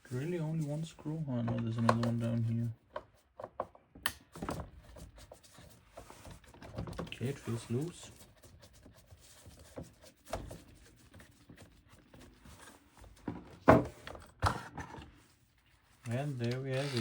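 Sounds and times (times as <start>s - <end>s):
plastic clicks and knocks: 1.4s - 2.3s.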